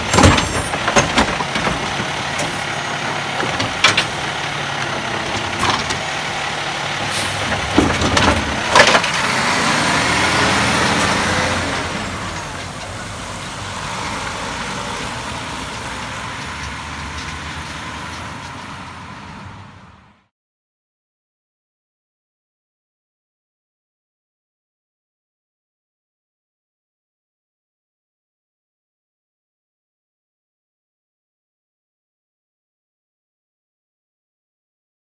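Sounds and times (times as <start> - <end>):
sharp metal bangs and clanks: 0.0 - 10.0
garbage truck engine running: 0.0 - 20.2.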